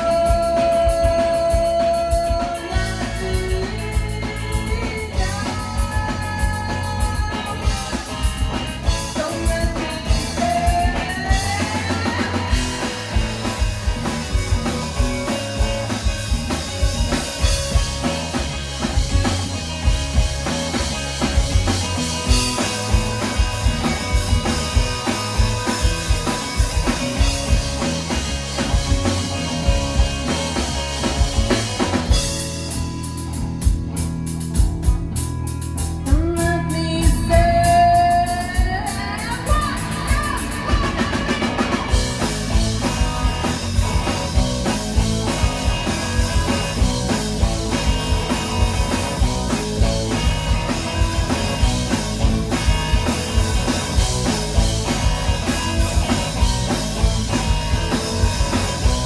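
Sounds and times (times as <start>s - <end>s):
drum-kit beat: 0.0s - 59.0s
guitar: 0.0s - 59.0s.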